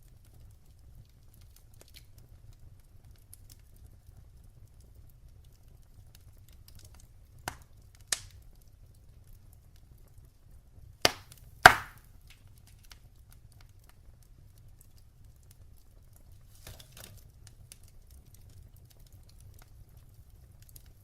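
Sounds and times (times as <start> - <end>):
wood fire crackling: 0.0 - 21.0
loud sharp pops of fire: 6.2 - 8.8, 10.8 - 14.2.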